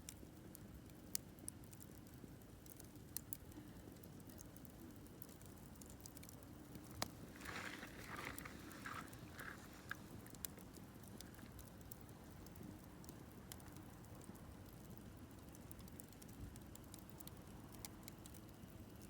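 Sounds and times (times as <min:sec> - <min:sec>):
campfire crackling and popping: 0:00.0 - 0:19.0
hissing sputtering crackle: 0:06.7 - 0:10.8.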